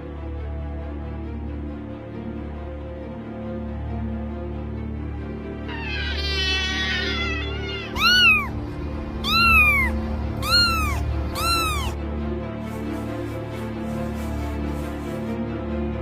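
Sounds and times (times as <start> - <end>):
background music: 0.0 - 16.0
cat meowing: 5.7 - 8.6, 9.2 - 12.0.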